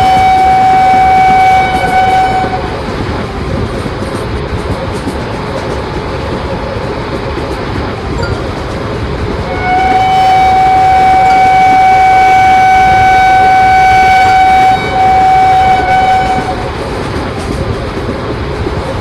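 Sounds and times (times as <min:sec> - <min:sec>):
train horn long note: 0:00.0 - 0:02.8, 0:09.5 - 0:16.7
rumble of passing train: 0:00.0 - 0:19.0.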